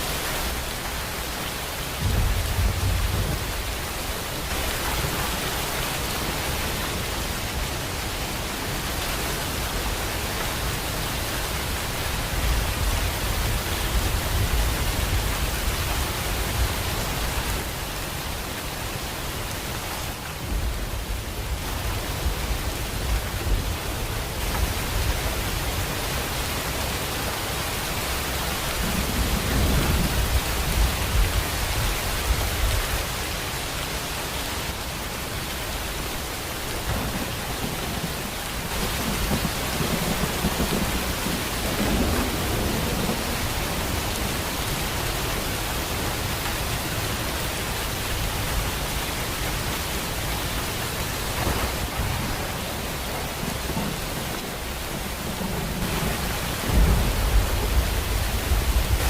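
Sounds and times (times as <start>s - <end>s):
steady rain: 0.0s - 59.0s
low rolls of thunder: 1.8s - 6.6s, 28.7s - 32.9s, 36.6s - 46.2s, 50.8s - 59.0s.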